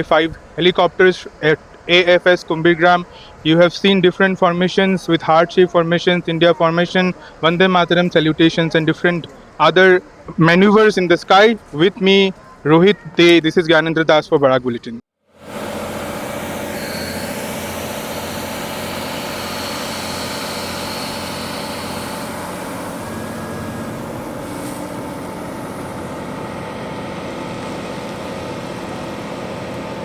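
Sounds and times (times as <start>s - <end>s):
engine running with high whine: 15.4s - 30.0s.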